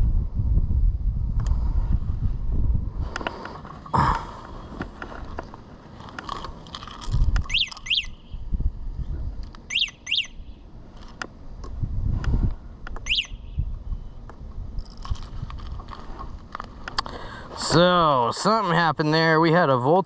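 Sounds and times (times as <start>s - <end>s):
wind rumble on microphone: 0.0s - 18.1s
small bird chirping: 7.4s - 8.6s, 9.7s - 10.6s, 13.0s - 13.7s.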